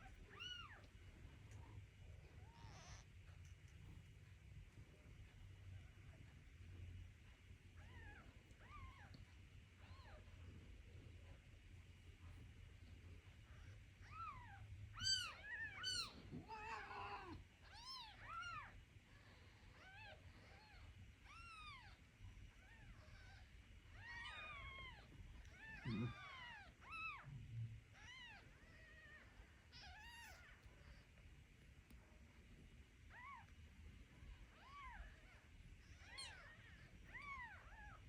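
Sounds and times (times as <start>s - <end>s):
kittens mewing: 22.6s - 27.3s.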